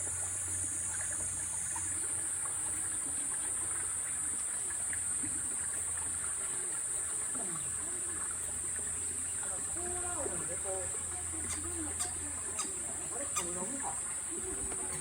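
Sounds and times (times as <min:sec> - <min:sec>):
running water hissing: 0:00.0 - 0:15.0
faint chirps: 0:09.3 - 0:15.0.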